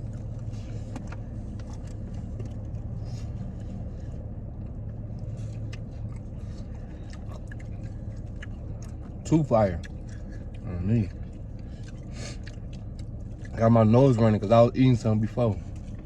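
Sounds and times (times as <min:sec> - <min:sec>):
person chewing crunchy food: 0:00.0 - 0:14.1
low engine hum: 0:00.0 - 0:16.0.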